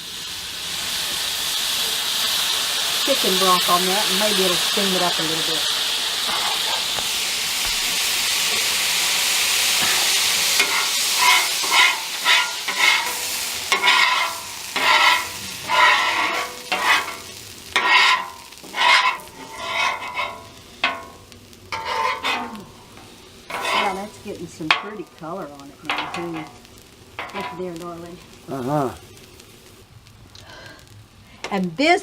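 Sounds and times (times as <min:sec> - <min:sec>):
food sizzling on a griddle: 0:00.0 - 0:32.0
spatula scraping on steel: 0:06.2 - 0:09.0, 0:09.7 - 0:25.1, 0:25.9 - 0:26.6, 0:27.2 - 0:27.6.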